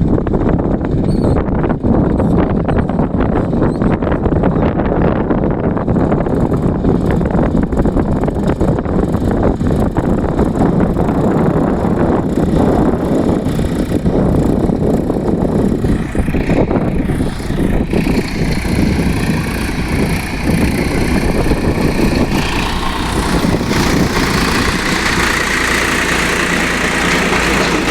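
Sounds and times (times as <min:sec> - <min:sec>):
tractor diesel engine running: 0:00.0 - 0:27.9
high mechanical whine: 0:06.2 - 0:27.9.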